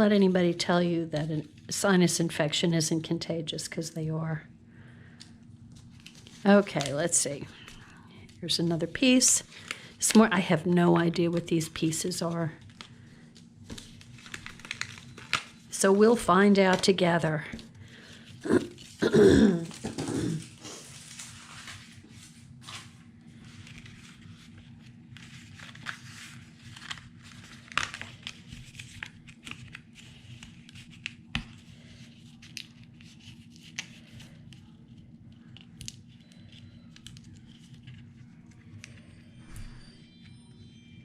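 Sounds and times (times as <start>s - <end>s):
paper rustling: 5.8s - 7.9s, 12.6s - 35.0s.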